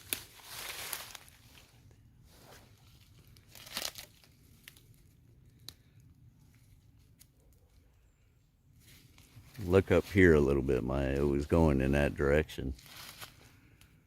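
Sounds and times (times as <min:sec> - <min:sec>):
footsteps in dry leaves: 0:00.0 - 0:05.1, 0:12.7 - 0:13.8.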